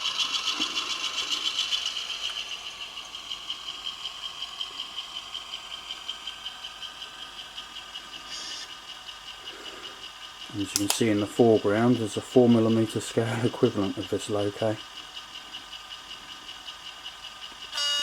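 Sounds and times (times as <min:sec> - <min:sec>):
speaker buzzing rattle: 0:00.0 - 0:03.6, 0:09.7 - 0:14.8
diesel engine sound from speaker: 0:00.0 - 0:18.0.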